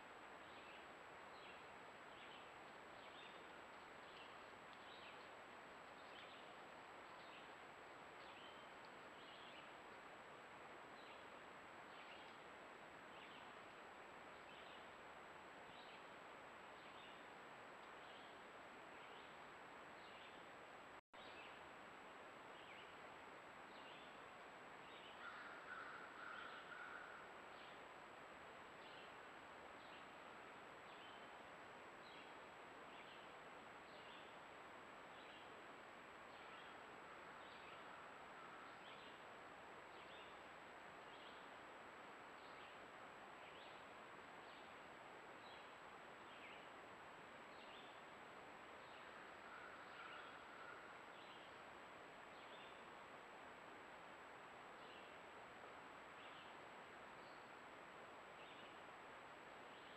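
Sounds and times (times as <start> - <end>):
microphone hiss: 0.0 - 59.9
faint bird chirps: 48.8 - 51.7.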